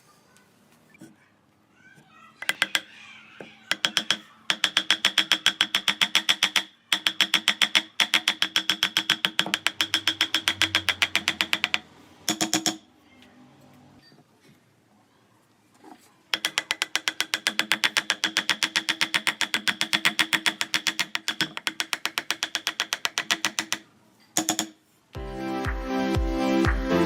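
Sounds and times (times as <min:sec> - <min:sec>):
rapid mechanical clicking: 0:03.7 - 0:12.8, 0:16.3 - 0:24.8.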